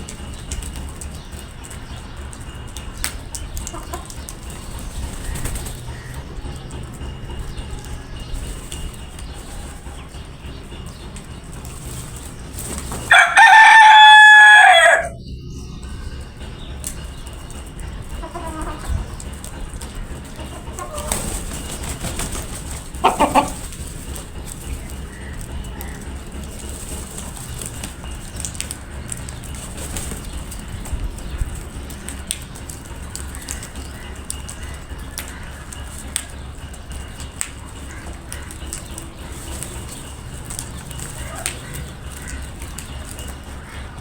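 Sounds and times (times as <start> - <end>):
hen clucking: 3.6 - 44.0
rooster crowing: 13.0 - 15.2.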